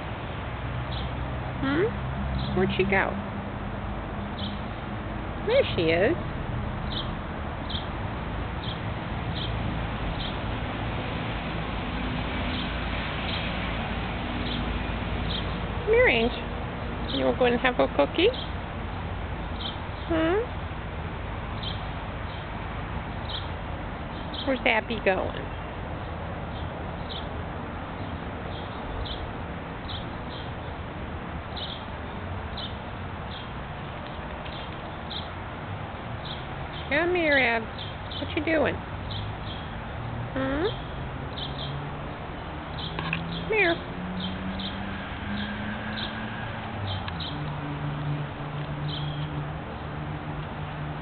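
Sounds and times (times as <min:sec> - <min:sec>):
outdoor background hiss: 0:00.0 - 0:51.0
small bird chirping: 0:32.5 - 0:35.4, 0:48.8 - 0:49.3.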